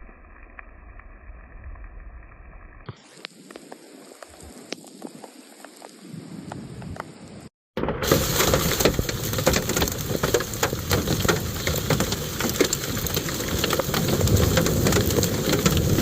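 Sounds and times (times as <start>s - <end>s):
hail and heavy rain pelting: 8.0s - 16.0s.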